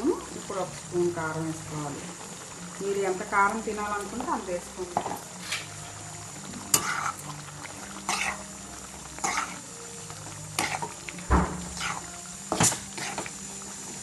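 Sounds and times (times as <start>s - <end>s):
curry simmering sizzle: 0.0s - 14.0s
spoon scraping cooking pan: 4.9s - 5.9s, 6.5s - 8.5s, 9.1s - 9.8s, 10.5s - 13.4s.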